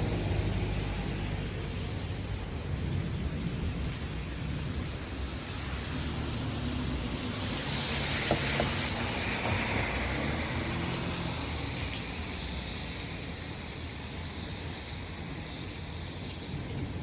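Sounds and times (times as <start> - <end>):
rolling rumble of thunder: 0.0 - 7.0
steady rain: 0.0 - 17.0.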